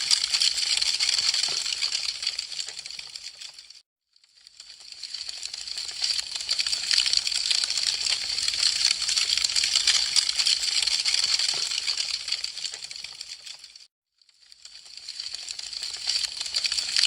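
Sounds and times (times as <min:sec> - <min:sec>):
wood fire crackling: 0:00.0 - 0:03.8, 0:04.5 - 0:13.8.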